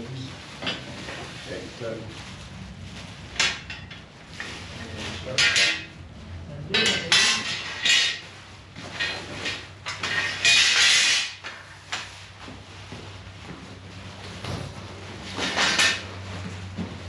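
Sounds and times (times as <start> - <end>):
metal tools clinking: 6.7 - 8.2.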